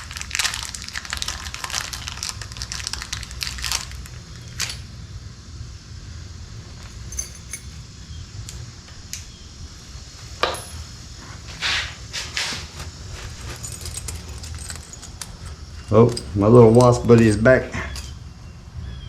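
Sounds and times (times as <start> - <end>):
keys jingling: 6.8 - 7.9, 13.0 - 18.2
lock hardware clicking: 7.0 - 7.8, 13.8 - 18.1.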